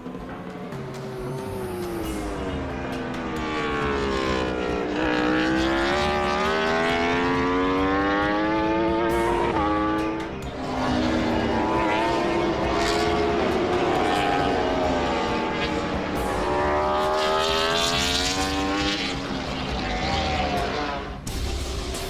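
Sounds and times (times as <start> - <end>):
motorcycle engine revving: 0.0 - 21.7.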